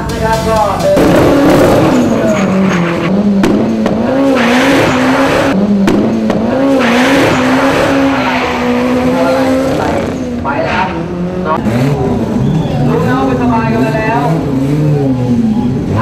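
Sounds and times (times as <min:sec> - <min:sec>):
racing car engine revving: 0:00.0 - 0:16.0
harsh rushing noise bursts: 0:00.8 - 0:11.1.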